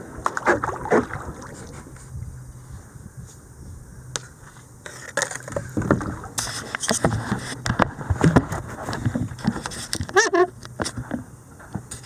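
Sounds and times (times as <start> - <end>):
paddle splashes: 0.0 - 2.2, 5.0 - 11.0
paddle knocking against kayak: 5.5 - 11.9.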